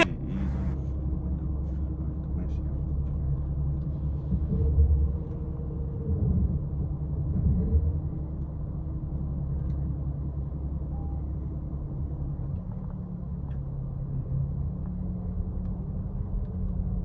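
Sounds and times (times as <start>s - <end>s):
muffled car wash rumble: 0.0s - 17.0s.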